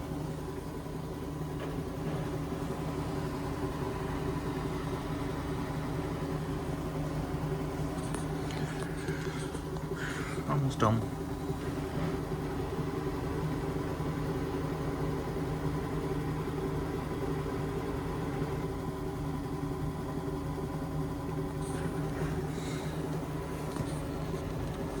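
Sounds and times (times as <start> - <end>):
washing machine drum spinning: 9.0 - 25.0.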